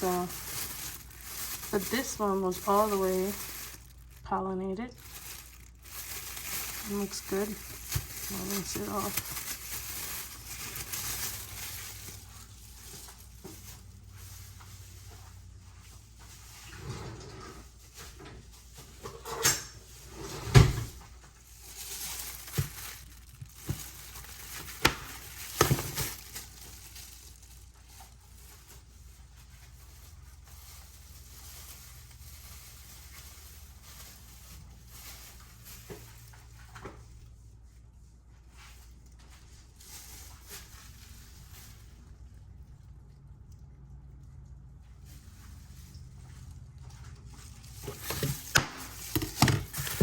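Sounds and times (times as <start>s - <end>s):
kitchen things knocking and clattering: 47.8s - 50.0s.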